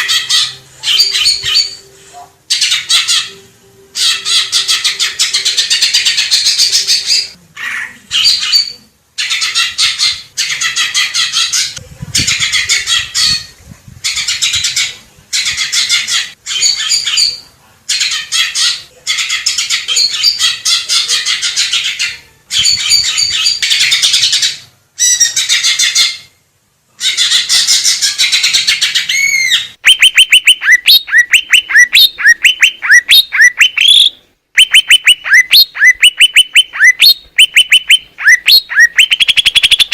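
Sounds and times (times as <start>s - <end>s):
bird chattering song: 0.0s - 1.9s, 27.0s - 39.9s
bird whistled notes: 29.2s - 39.9s.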